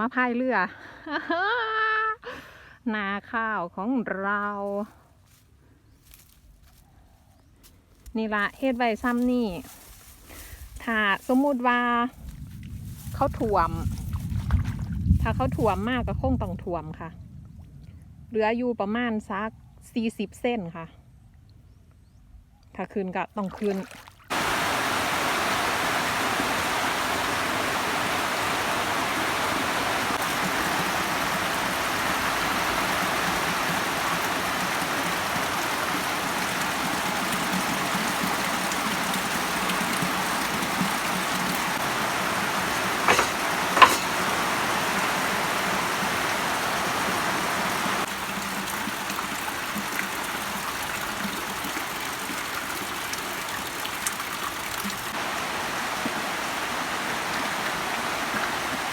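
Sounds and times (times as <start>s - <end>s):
rushing floodwater: 23.5s - 58.9s.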